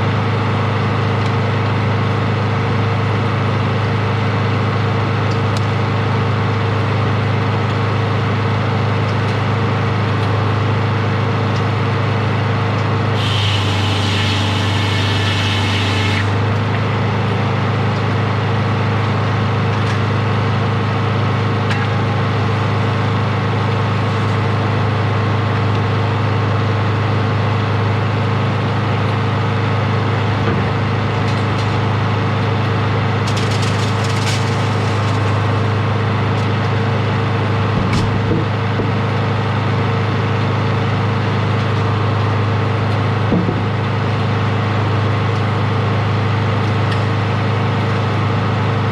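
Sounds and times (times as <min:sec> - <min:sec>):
sawmill engine running: 0:09.6 - 0:37.8.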